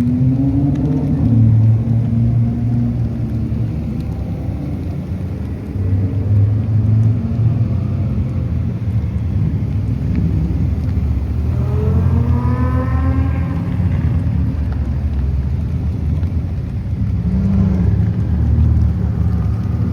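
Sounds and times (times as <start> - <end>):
sports car engines rumbling: 0.0 - 19.9
engine revving: 10.3 - 14.7.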